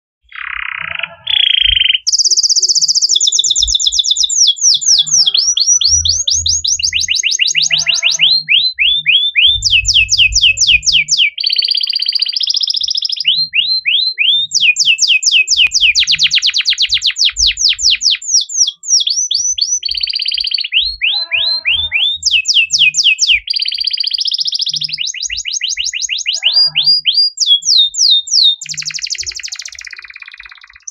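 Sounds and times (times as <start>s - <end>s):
canary singing trills: 0.2s - 30.9s.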